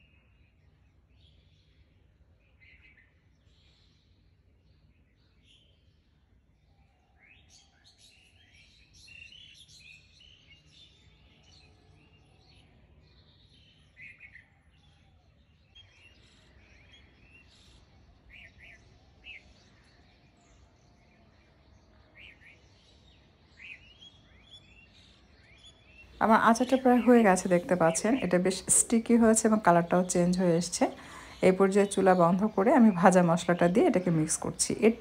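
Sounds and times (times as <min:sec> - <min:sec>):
faint birds chirping: 0:00.0 - 0:35.0.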